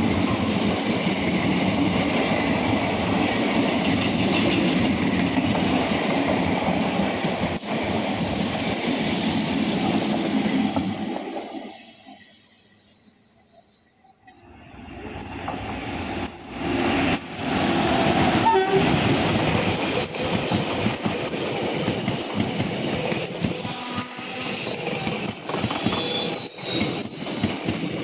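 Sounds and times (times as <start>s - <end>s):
train rushing rumble: 0.0s - 12.4s, 14.3s - 28.0s
train horn: 18.4s - 19.0s, 23.6s - 24.5s
metallic wheel squeal: 22.9s - 28.0s.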